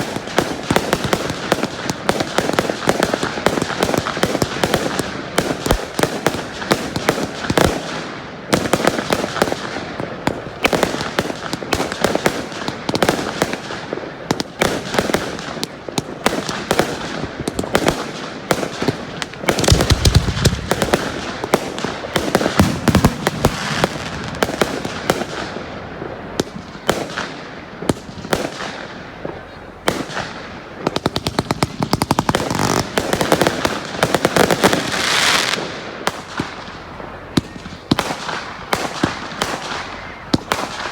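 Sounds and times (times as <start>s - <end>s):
rapid crackling bangs: 0.0s - 40.9s
firework shells bursting: 14.3s - 25.8s.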